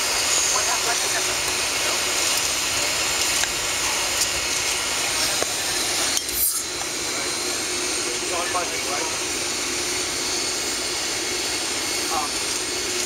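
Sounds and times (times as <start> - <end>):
high-pitched scrape: 6.2 - 6.7.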